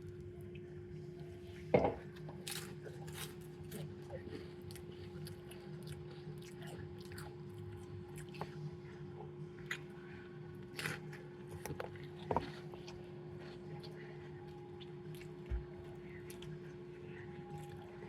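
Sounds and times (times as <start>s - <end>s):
person chewing wetly: 2.0s - 18.0s.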